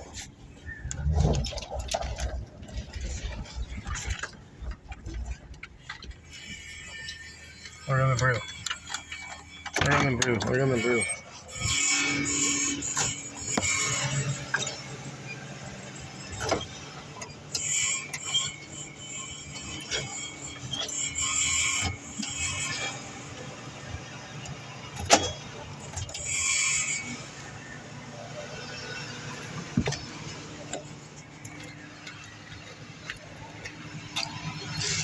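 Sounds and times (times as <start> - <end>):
car engine idling: 23.2 - 35.0.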